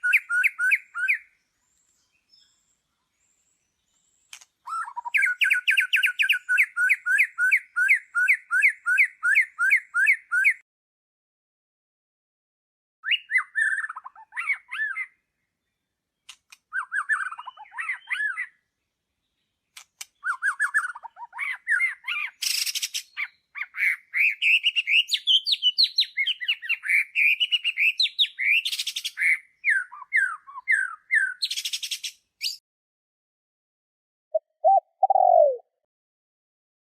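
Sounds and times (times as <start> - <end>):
songbird singing: 0.0 - 10.6, 13.0 - 32.6, 34.3 - 35.7.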